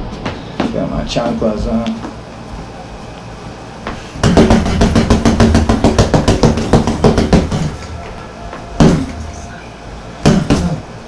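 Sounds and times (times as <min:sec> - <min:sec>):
punches thudding on punching bag: 0:04.2 - 0:07.8, 0:08.8 - 0:09.2, 0:10.2 - 0:10.8.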